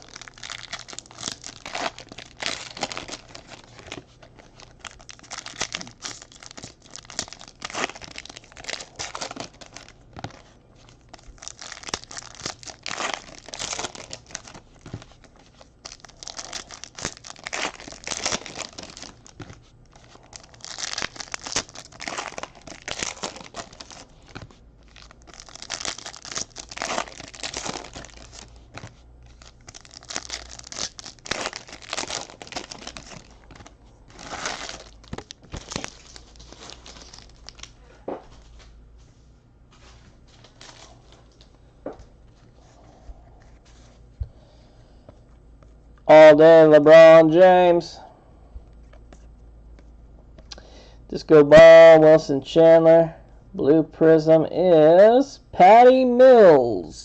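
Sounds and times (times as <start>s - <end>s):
card pack wrappers crinkling: 0.0s - 37.8s.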